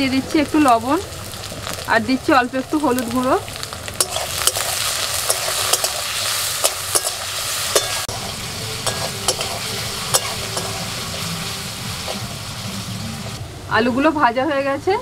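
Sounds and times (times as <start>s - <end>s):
potatoes sizzling in oil: 0.0s - 13.4s
metal spatula scraping pan: 4.0s - 12.4s.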